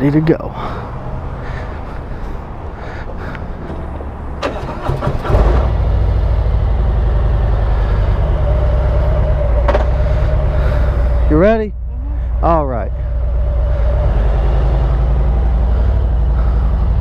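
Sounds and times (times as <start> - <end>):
motorcycle engine starting and idling: 3.7 - 11.2.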